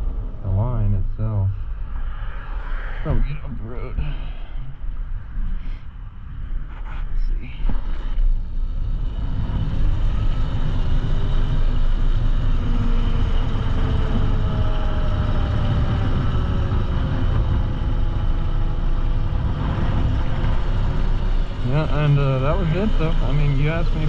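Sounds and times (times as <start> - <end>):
wind rumble on microphone: 0.0 - 24.0.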